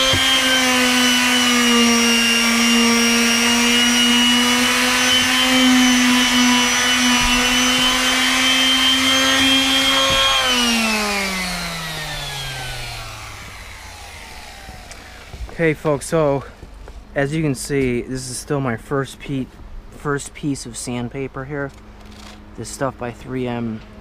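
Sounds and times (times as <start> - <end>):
palm sander motor whine: 0.0 - 16.4.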